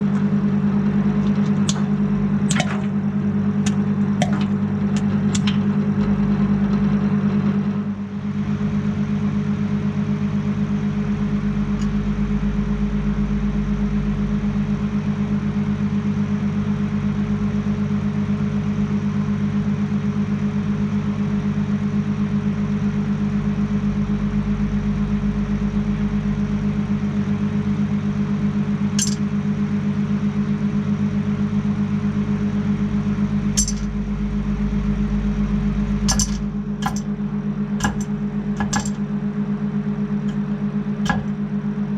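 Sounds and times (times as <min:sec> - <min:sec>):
microwave oven humming: 0:00.0 - 0:41.9
popcorn popping: 0:01.2 - 0:03.0, 0:03.6 - 0:05.8, 0:29.0 - 0:29.2, 0:33.6 - 0:34.0, 0:35.9 - 0:37.2, 0:37.8 - 0:39.0, 0:41.0 - 0:41.4.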